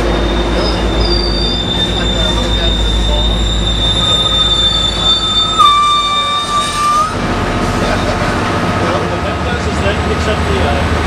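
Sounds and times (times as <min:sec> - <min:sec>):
high wheel squeal: 0:00.0 - 0:08.1
diesel locomotive engine rumble: 0:00.0 - 0:11.0.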